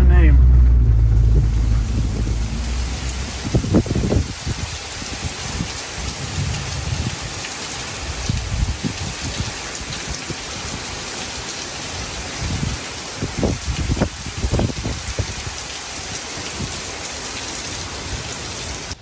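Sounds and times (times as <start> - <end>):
low rumbling: 0.0 - 5.5
heavy rain falling: 0.0 - 19.0.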